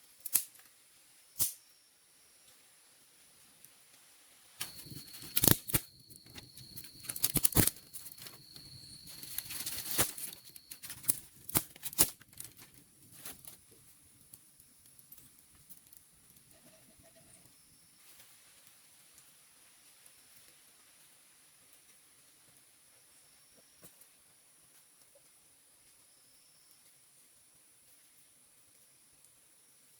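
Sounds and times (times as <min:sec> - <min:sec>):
plant material tearing and snapping: 0:04.6 - 0:12.8.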